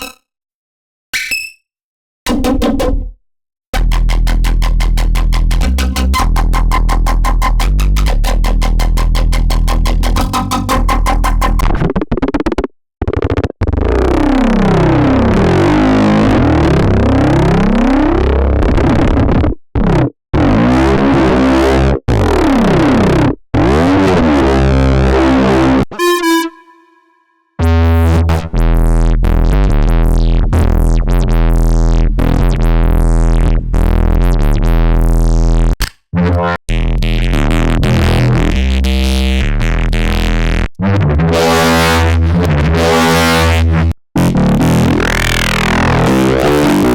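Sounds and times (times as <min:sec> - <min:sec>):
deep pulsing bass pattern: 0:03.7 - 0:11.8, 0:27.6 - 0:35.8, 0:36.7 - 0:46.9
gritty synthesizer bass tones: 0:03.7 - 0:12.0, 0:13.7 - 0:46.9.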